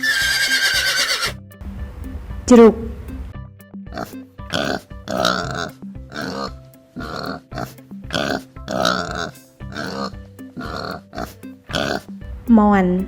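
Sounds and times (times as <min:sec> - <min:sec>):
pig grunting: 0:03.9 - 0:12.2.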